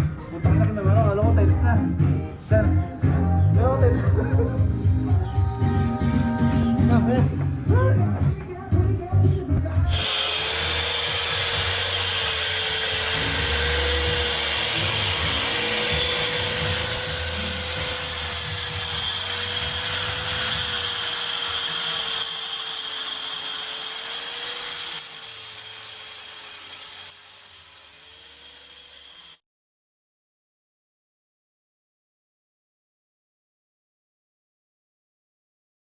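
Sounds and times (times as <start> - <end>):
grinding rasp on concrete: 9.8 - 29.4
electric grinder motor whine: 9.9 - 29.4.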